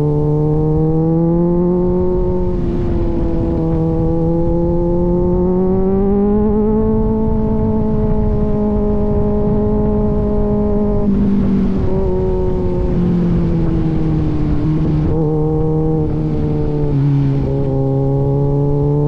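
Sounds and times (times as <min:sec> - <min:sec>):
motorcycle engine cruising: 0:00.0 - 0:19.0.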